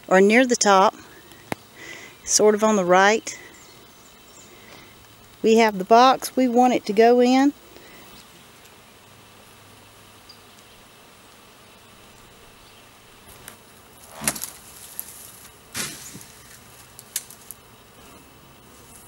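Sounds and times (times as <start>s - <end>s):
bees buzzing: 0.0s - 19.0s
loud rustling: 13.2s - 17.8s.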